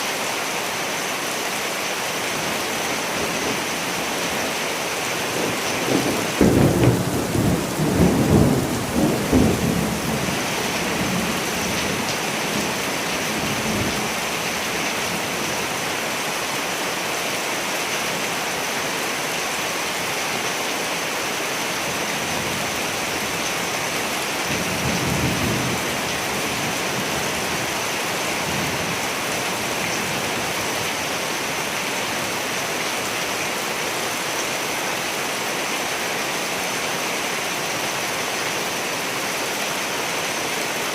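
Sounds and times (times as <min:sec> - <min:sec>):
rain hissing: 0:00.0 - 0:35.3
thunder rumbling: 0:05.3 - 0:12.8.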